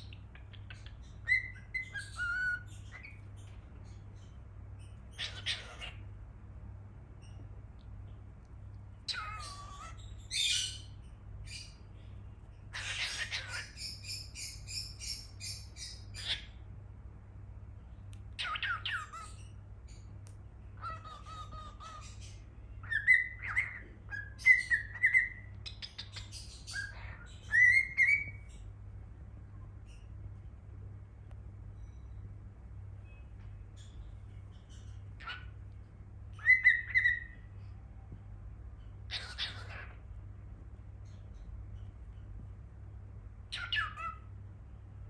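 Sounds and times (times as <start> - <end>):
cockatiel chirping and squawking: 0.0 - 4.3, 5.1 - 6.1, 9.1 - 11.8, 12.7 - 16.6, 18.4 - 20.1, 20.8 - 28.6, 33.8 - 35.7, 36.3 - 37.4, 38.8 - 40.0, 43.5 - 44.3.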